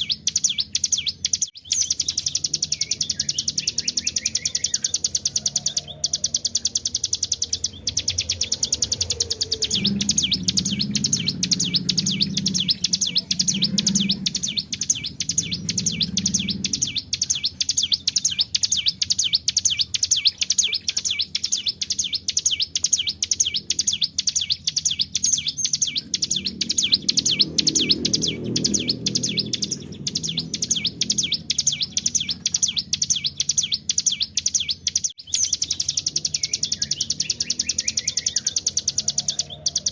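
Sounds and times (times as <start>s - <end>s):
bird singing rolling trill: 0.0s - 39.9s
low hum: 1.9s - 18.8s.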